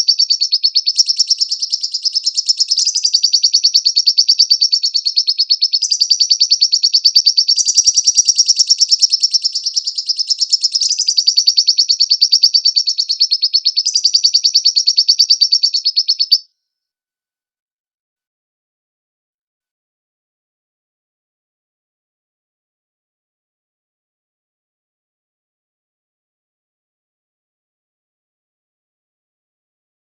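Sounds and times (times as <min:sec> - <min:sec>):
bird chattering trill: 0:00.0 - 0:16.4.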